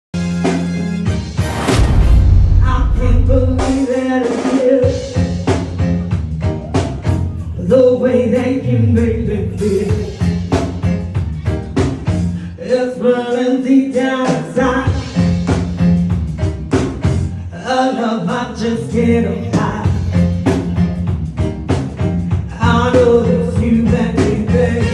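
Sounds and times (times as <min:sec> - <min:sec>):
bass guitar: 0:00.2 - 0:04.0, 0:04.8 - 0:12.7, 0:14.6 - 0:17.6, 0:18.3 - 0:24.9
drum kit: 0:00.2 - 0:17.4, 0:18.3 - 0:24.9
person singing: 0:02.6 - 0:06.0, 0:22.5 - 0:24.9.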